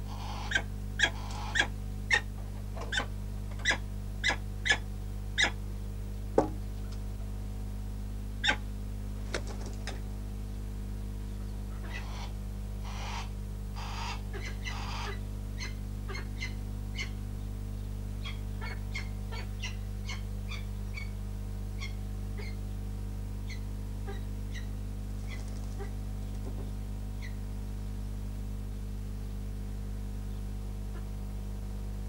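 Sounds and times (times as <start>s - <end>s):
steady electrical hum: 0.0s - 32.0s
bird giving sharp calls: 0.1s - 2.2s, 8.4s - 8.6s, 11.8s - 17.2s, 18.2s - 21.1s.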